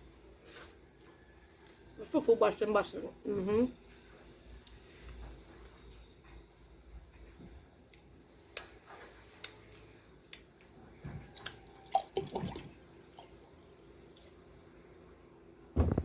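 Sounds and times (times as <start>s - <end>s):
wet eating sounds: 7.8s - 14.5s.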